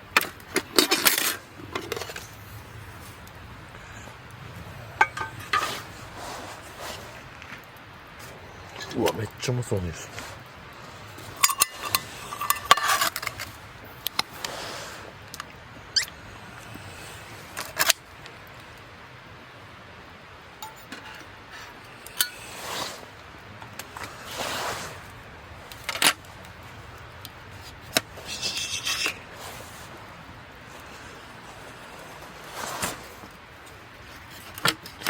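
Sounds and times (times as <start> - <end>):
metal cookware clinking: 5.0 - 5.8, 11.4 - 13.4, 20.6 - 21.3.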